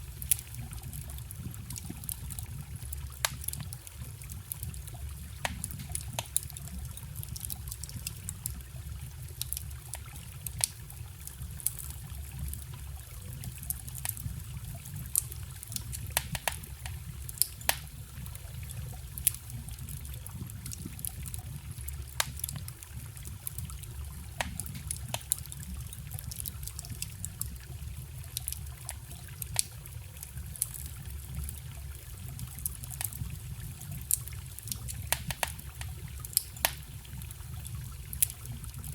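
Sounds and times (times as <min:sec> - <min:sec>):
campfire crackling and popping: 0:00.0 - 0:38.9
small stream trickling: 0:00.0 - 0:38.9.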